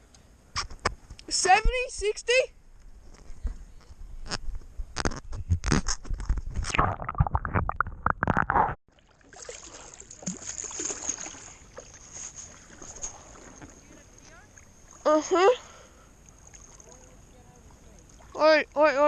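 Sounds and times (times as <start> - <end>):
water splashing around kayak: 8.9 - 15.4, 16.2 - 19.0
soft wash of water: 8.9 - 19.0.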